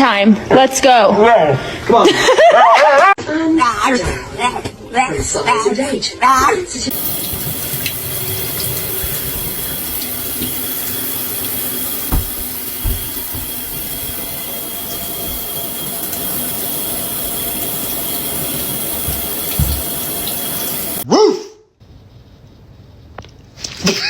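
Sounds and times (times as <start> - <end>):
running water rushing: 6.9 - 21.0
dull thumps: 12.0 - 14.1, 19.0 - 20.0.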